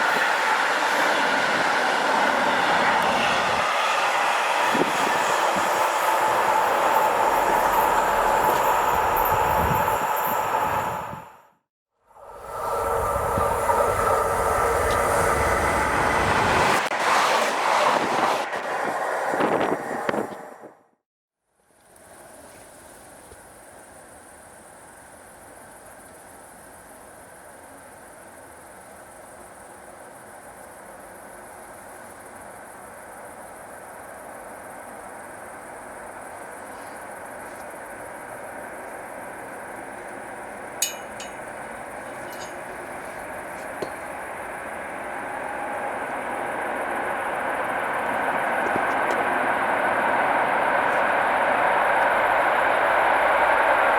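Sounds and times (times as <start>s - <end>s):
train passing: 0.0s - 20.9s, 30.2s - 53.9s
insects trilling: 3.8s - 11.0s, 22.2s - 53.9s
train wheel clicks: 4.0s - 11.0s, 39.9s - 49.8s.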